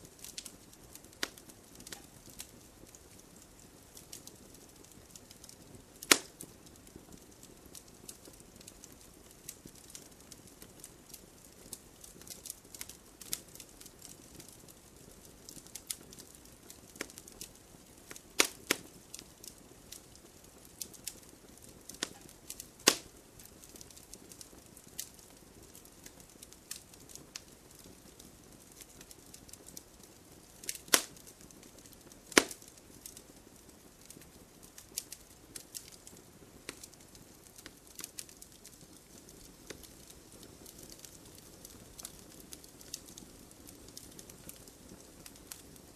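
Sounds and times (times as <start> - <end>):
firewood crackling: 0.0 - 45.9
sharp fire pops: 0.2 - 10.7, 15.5 - 19.6, 20.8 - 25.8, 29.5 - 33.2, 34.0 - 45.7.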